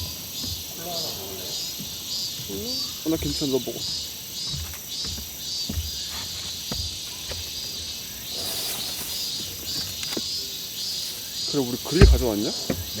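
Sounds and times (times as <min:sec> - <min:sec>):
crickets chirping: 0:00.0 - 0:13.0
high insect drone: 0:00.0 - 0:13.0
soft knocks: 0:11.8 - 0:13.0.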